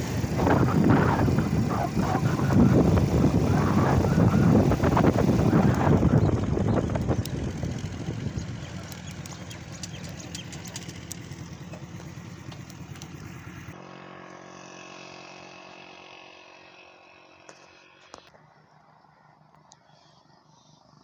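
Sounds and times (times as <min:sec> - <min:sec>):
wind noise: 0:00.0 - 0:11.7
road noise: 0:00.0 - 0:13.8
motorcycle engine running: 0:00.0 - 0:19.4.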